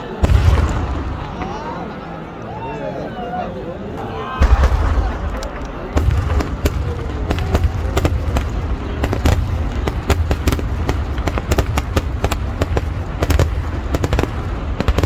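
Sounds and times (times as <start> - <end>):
fireworks bangs: 0.0 - 2.4, 4.0 - 15.0
deep rumble: 4.4 - 15.0.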